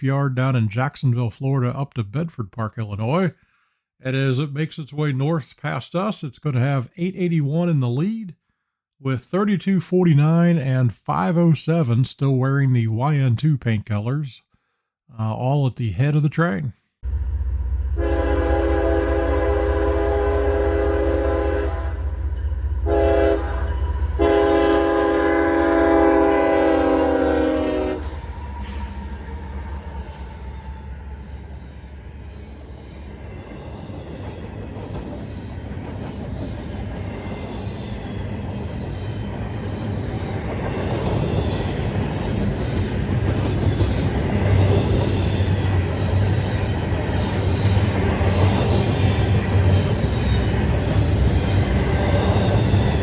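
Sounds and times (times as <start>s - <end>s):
locomotive engines rumbling: 17.1s - 34.9s, 35.7s - 53.0s
locomotive air horn blasts: 18.0s - 22.2s, 22.8s - 28.3s.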